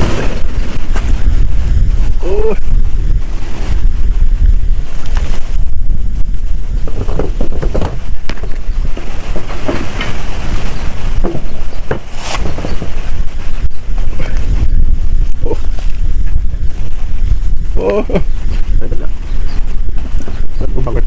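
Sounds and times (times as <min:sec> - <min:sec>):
strong wind buffeting microphone: 0:00.0 - 0:21.0.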